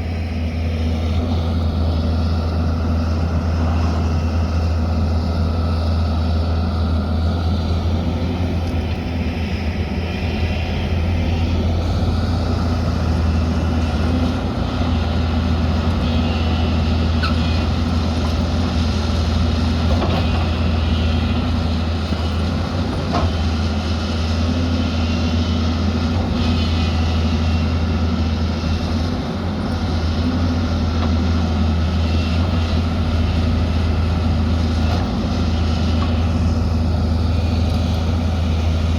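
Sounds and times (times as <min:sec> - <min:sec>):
diesel engine humming: 0:00.0 - 0:38.9.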